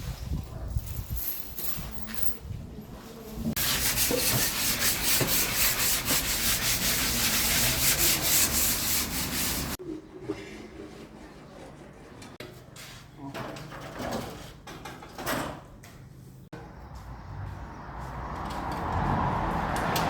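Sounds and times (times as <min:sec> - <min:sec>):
sandpaper rubbing on wood: 0:03.6 - 0:09.8.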